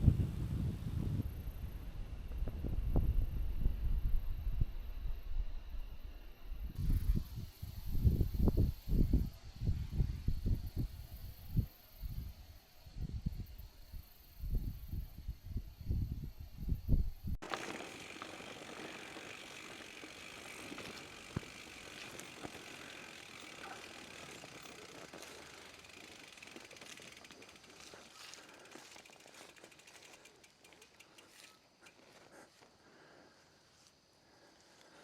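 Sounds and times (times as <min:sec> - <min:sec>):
wind buffeting microphone: 0:00.0 - 0:04.9
bicycle freewheel ticking: 0:14.4 - 0:32.1
tyre noise: 0:17.4 - 0:30.1.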